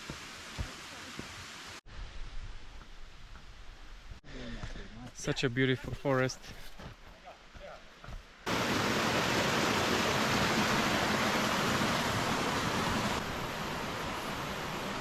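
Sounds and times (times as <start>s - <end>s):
forest stream rushing: 0.0s - 1.8s, 8.4s - 15.0s.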